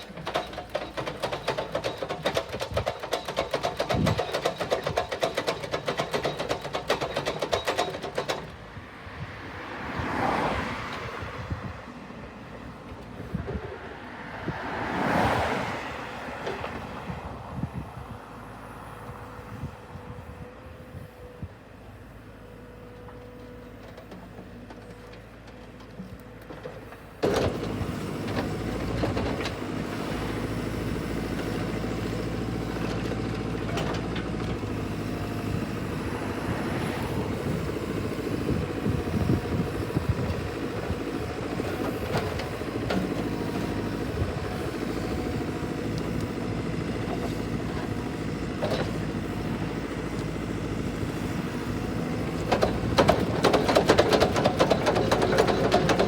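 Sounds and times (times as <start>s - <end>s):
engine running: 18.4s - 56.0s.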